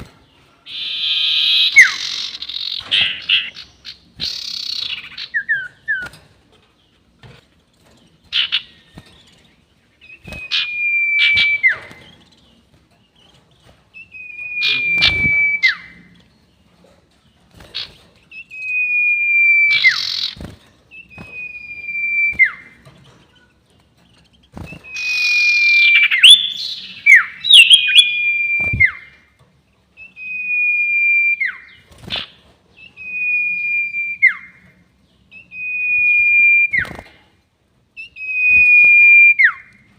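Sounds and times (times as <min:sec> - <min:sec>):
bird whistling: 0:00.7 - 0:06.1, 0:10.0 - 0:12.2, 0:14.0 - 0:16.1, 0:18.4 - 0:22.8, 0:24.6 - 0:29.2, 0:30.0 - 0:34.6, 0:35.3 - 0:37.0, 0:38.0 - 0:39.8
sharp bird call notes: 0:14.3 - 0:15.9.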